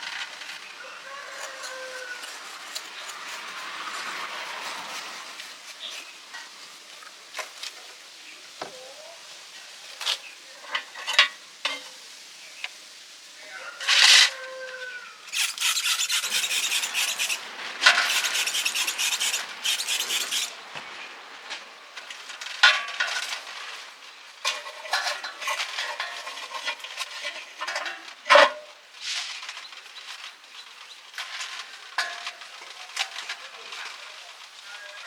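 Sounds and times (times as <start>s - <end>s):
scraping and rubbing strokes: 0.0s - 7.8s, 13.8s - 21.1s, 24.4s - 34.3s.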